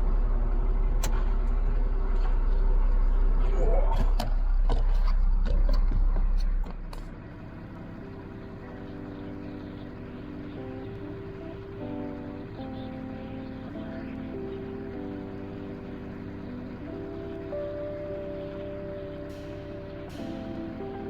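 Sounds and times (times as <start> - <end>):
steady low rumble: 0.0 - 21.0
background music with held notes: 6.9 - 21.0.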